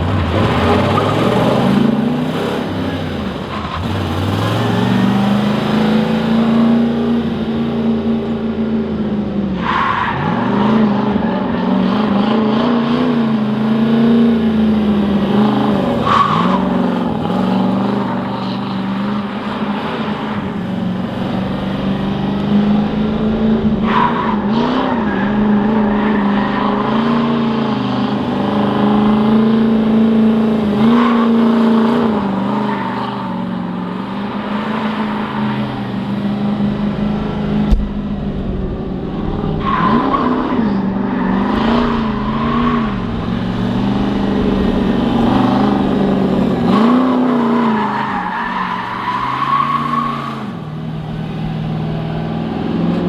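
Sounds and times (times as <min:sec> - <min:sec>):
truck engine revving high: 0:00.0 - 0:53.0
tyres squealing: 0:45.0 - 0:50.6.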